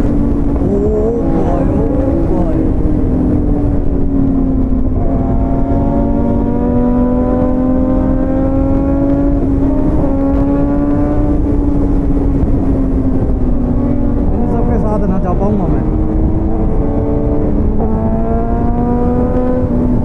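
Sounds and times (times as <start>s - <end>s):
motorcycle engine running: 0.0s - 14.7s
wind noise on microphone: 0.0s - 20.0s.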